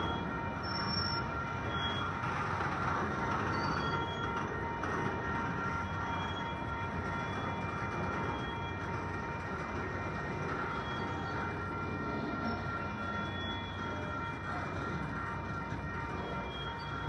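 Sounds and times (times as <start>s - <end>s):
freight train wheels rumbling on rail: 0.0s - 17.0s
high-pitched wheel squeals: 3.5s - 4.4s.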